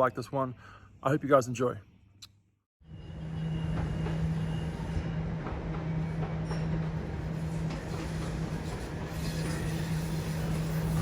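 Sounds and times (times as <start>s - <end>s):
electric train humming: 2.8s - 11.0s.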